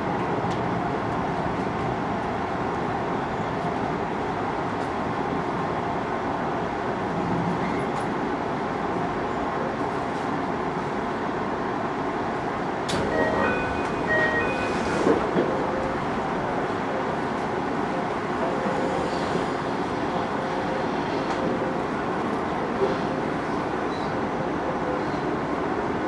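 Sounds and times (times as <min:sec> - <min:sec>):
train interior rumble: 0:00.0 - 0:26.0.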